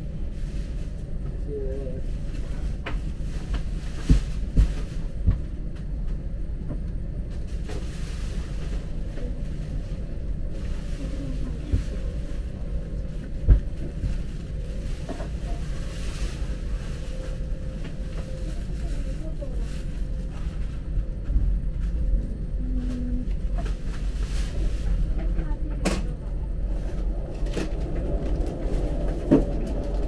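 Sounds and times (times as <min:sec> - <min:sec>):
train carriage rumble: 0:00.0 - 0:30.0.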